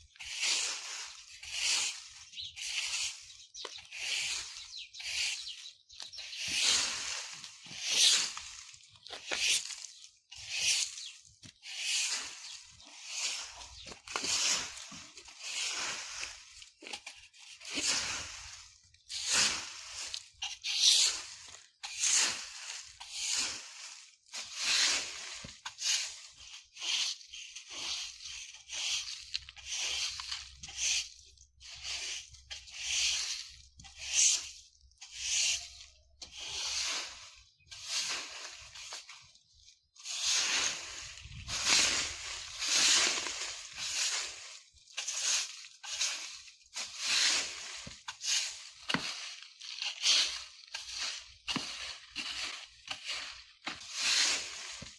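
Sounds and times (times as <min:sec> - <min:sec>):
broom sweeping dry leaves: 0:00.0 - 0:54.9.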